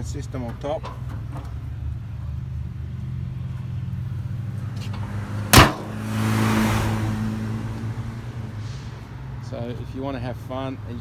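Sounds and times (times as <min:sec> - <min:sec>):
car engine idling: 0:00.0 - 0:11.0
loud slam: 0:05.5 - 0:06.1.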